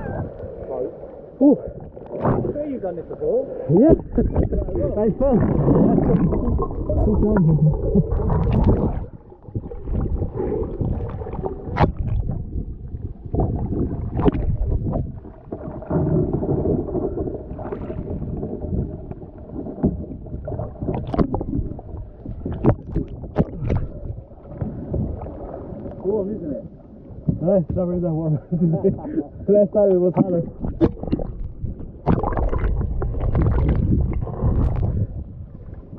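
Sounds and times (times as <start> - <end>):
low rumble: 0.0 - 29.6
water sloshing and gurgling: 0.0 - 35.9.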